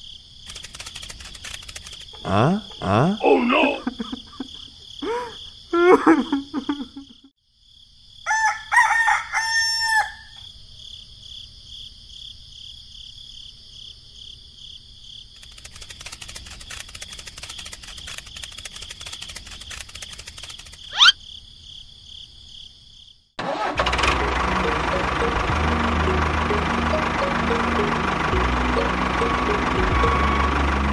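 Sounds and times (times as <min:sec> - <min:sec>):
high insect drone: 0:00.0 - 0:23.2
rapid fine ticking: 0:00.4 - 0:02.8, 0:15.4 - 0:21.0
rooster crowing: 0:08.2 - 0:10.4.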